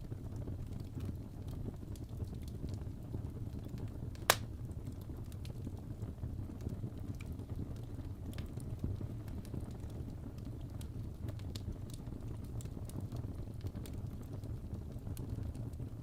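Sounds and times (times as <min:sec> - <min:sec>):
fireplace crackling: 0:00.1 - 0:16.0
loud fire pop: 0:04.3 - 0:04.5.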